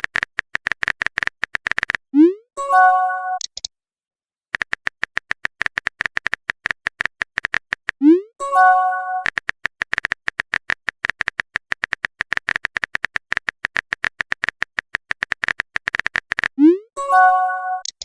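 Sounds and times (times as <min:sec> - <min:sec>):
smartphone keyboard typing clicks: 0:00.0 - 0:02.1, 0:03.4 - 0:03.7, 0:04.5 - 0:08.0, 0:09.2 - 0:16.6, 0:17.8 - 0:18.0.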